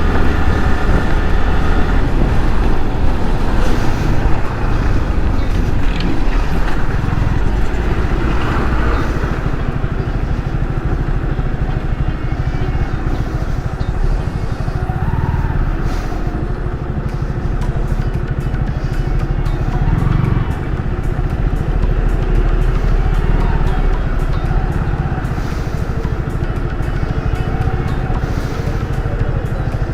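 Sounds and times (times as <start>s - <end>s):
wind rush on microphone: 0.0s - 11.6s
motorcycle engine running: 0.0s - 29.9s.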